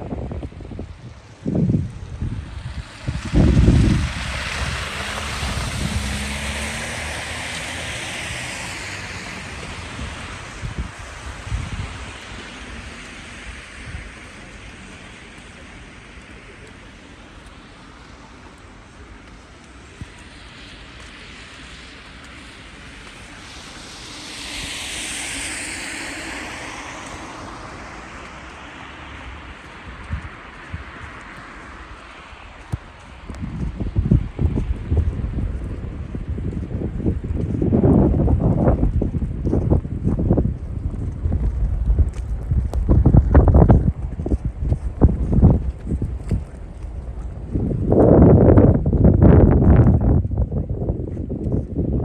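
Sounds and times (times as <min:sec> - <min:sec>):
wind buffeting microphone: 0:00.0 - 0:17.5, 0:18.5 - 0:52.0
tyres hissing on slushy street: 0:00.2 - 0:48.0
tyres hissing on snow: 0:19.9 - 0:30.0.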